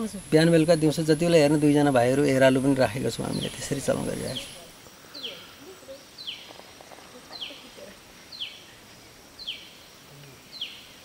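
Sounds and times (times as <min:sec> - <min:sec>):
faint forest background: 0:00.0 - 0:11.0
bird calling: 0:02.8 - 0:11.0.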